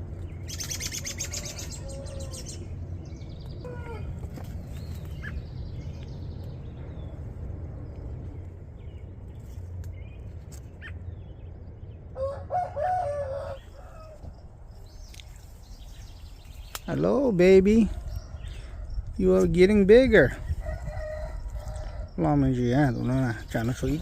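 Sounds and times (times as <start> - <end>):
small birds chirping: 0.0 - 12.3, 13.4 - 24.0
low rumble: 0.0 - 24.0
rooster crowing: 12.2 - 14.3, 20.4 - 22.2.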